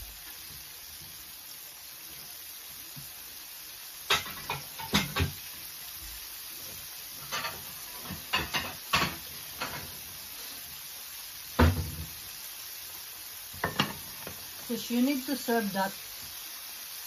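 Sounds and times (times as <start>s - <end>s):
chicken sizzling in oil: 0.0s - 17.0s
thump: 11.6s - 12.1s.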